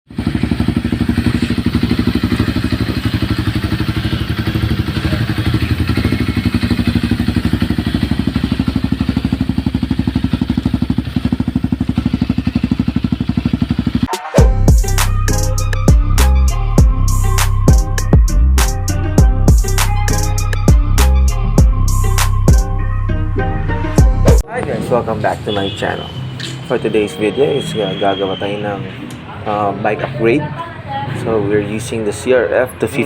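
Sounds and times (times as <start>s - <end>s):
motorcycle engine idling: 0.1s - 14.9s.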